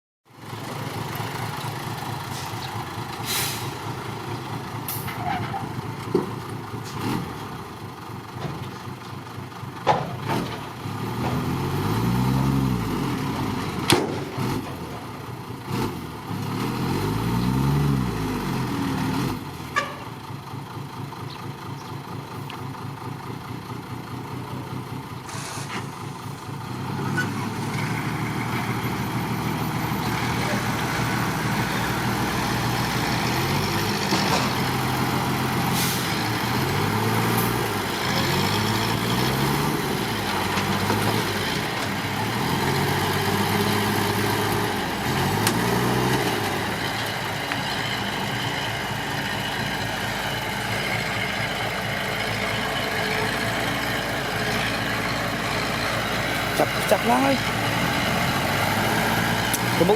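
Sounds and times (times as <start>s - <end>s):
diesel machinery engine revving: 0.4s - 8.7s, 9.3s - 59.9s.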